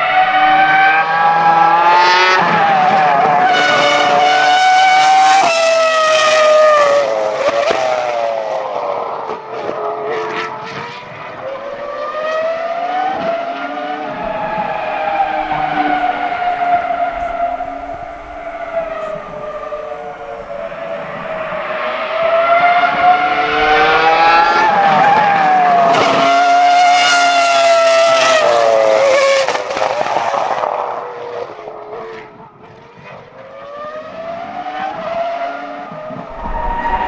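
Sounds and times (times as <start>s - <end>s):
racing car engine screaming: 0.0s - 6.8s, 11.3s - 29.8s, 34.4s - 37.0s.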